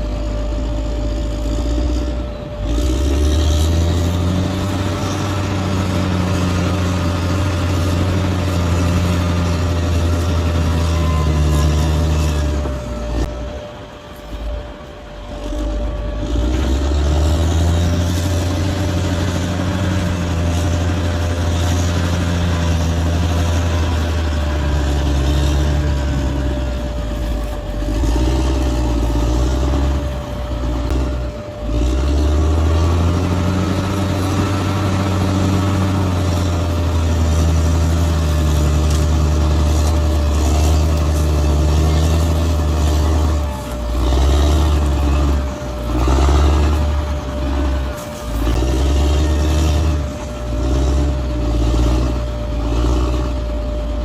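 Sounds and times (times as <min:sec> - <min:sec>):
bulldozer diesel engine working: 0:00.0 - 0:54.0.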